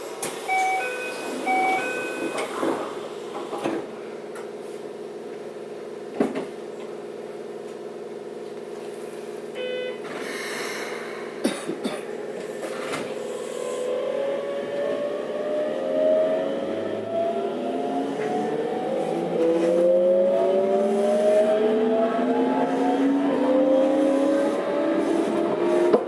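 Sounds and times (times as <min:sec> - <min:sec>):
train inverter whine rising: 0:00.0 - 0:04.4, 0:12.2 - 0:26.0
beeps: 0:00.5 - 0:02.5.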